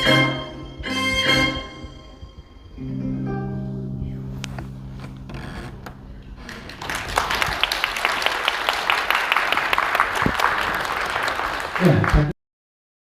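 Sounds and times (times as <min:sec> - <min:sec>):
music note: 0:00.0 - 0:06.2
audience applause: 0:06.4 - 0:12.3.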